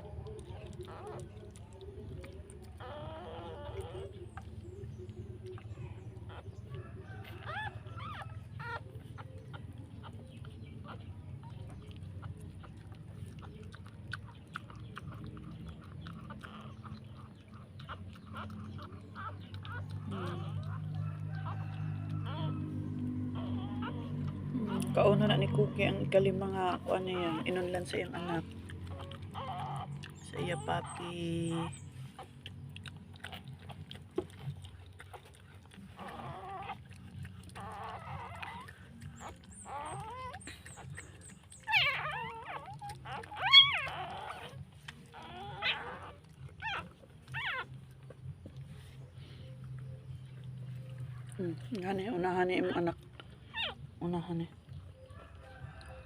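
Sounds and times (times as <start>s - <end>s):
dog chewing and licking: 0.0s - 56.0s
newborn puppy squeaking: 0.0s - 56.0s.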